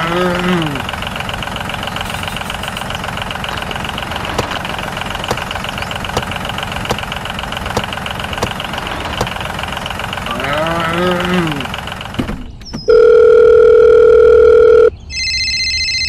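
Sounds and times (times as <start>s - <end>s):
toy tractor engine running: 0.0s - 12.2s
sharp clicks: 3.6s - 9.9s.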